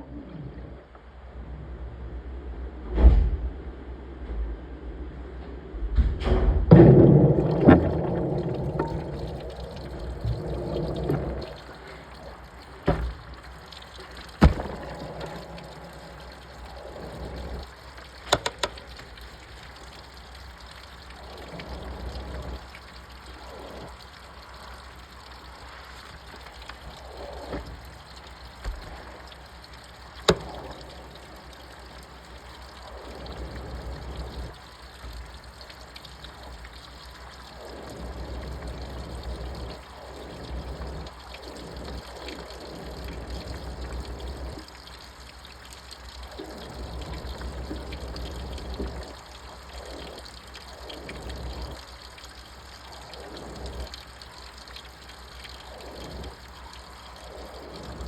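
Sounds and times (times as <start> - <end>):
low motor hum: 3.3 - 24.1
washing machine water sloshing: 6.7 - 56.9.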